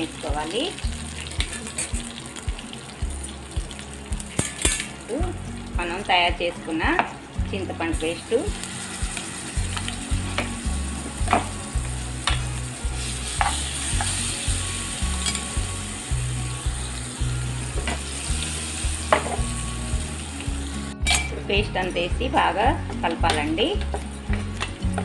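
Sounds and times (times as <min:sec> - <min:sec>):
paste sizzling in hot oil: 0:00.0 - 0:21.0.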